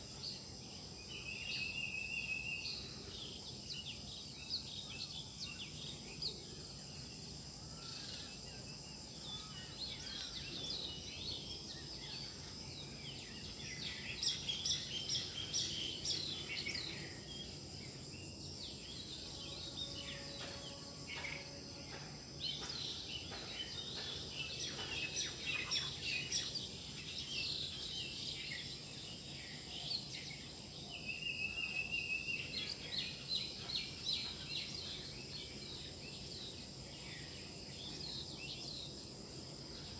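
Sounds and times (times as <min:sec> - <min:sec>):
birds chirping and singing: 0:22.5 - 0:28.2.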